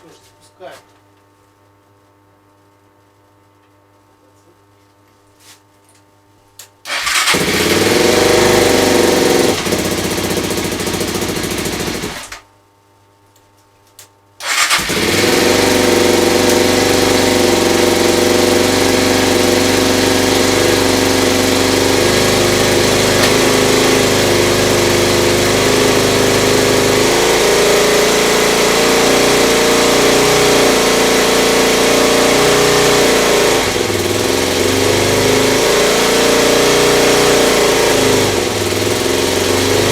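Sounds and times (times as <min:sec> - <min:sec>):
motorcycle engine starting and running: 0:06.9 - 0:12.4, 0:14.4 - 0:39.9.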